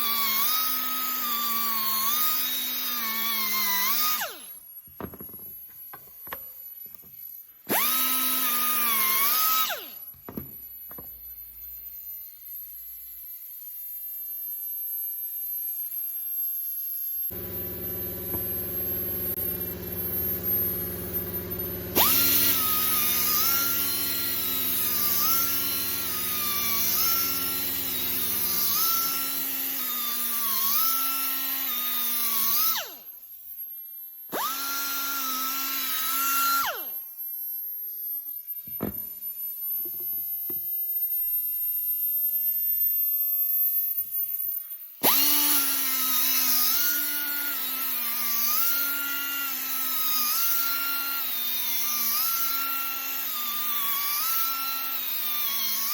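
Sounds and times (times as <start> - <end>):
angle grinder whining on metal: 0.0 - 42.1, 43.8 - 55.9
low machine hum: 17.3 - 25.1.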